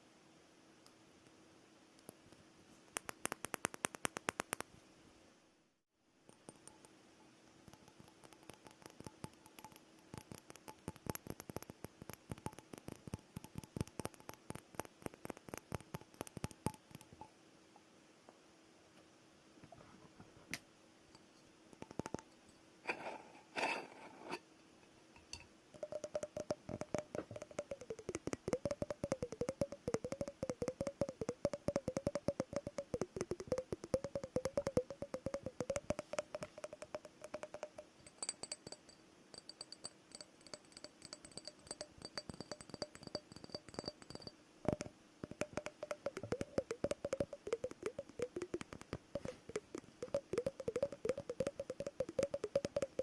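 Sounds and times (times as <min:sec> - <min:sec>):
fingernails tapping on glass: 0:25.8 - 0:53.0
wavering ringing tone: 0:25.8 - 0:53.0.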